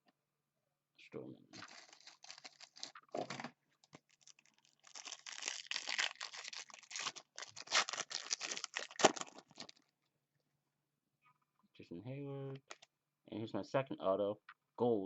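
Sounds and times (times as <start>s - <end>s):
trading cards and foil wrapper rustling: 1.6s - 9.8s.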